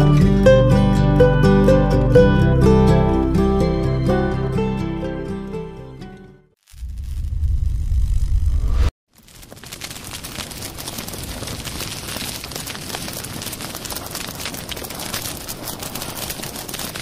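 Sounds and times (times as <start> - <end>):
small fire crackling: 6.5 - 17.0.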